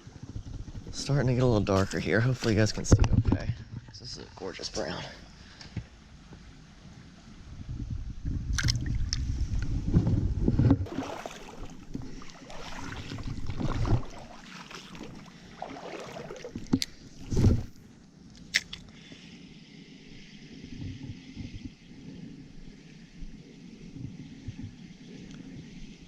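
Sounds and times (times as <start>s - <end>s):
stream water splashing: 8.5s - 9.3s, 10.8s - 17.9s
rumbling handling noise: 16.5s - 18.8s.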